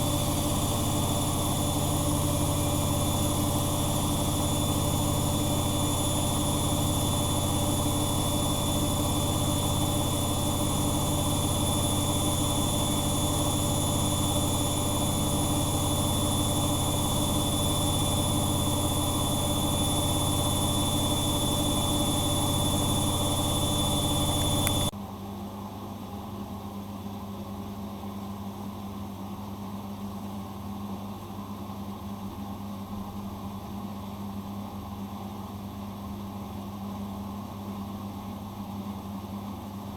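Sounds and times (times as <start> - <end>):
washing machine humming and whining: 0.0 - 24.9.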